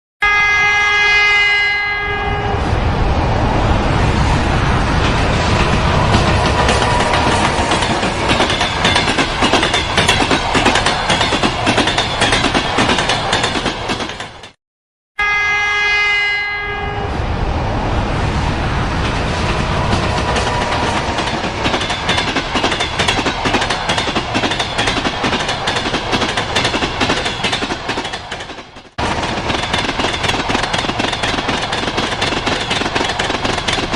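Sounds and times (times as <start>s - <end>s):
locomotive horn: 0.2s - 2.8s, 15.2s - 17.2s
train rumbling past: 0.2s - 14.6s, 15.4s - 33.9s
wheel clatter on rail joints: 4.6s - 14.6s, 18.9s - 33.9s.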